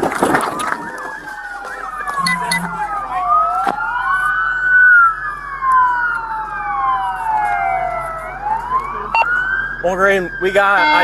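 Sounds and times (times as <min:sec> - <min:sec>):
police sirens wailing: 0:00.0 - 0:11.0.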